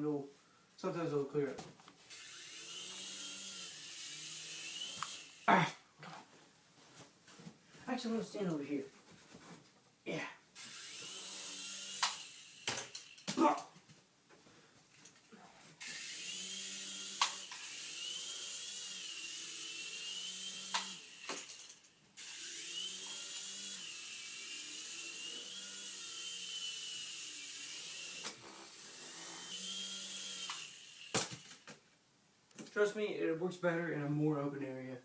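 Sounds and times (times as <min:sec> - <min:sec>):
toy helicopter rotor whirring: 0:02.1 - 0:05.5, 0:10.6 - 0:13.3, 0:15.8 - 0:31.6.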